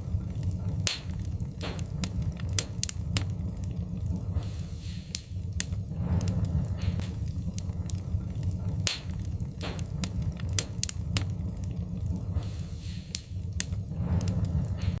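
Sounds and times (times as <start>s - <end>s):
low rumble of flames: 0.0s - 15.0s
sharp pops of fire: 0.0s - 15.0s
wood fire crackling: 0.0s - 15.0s.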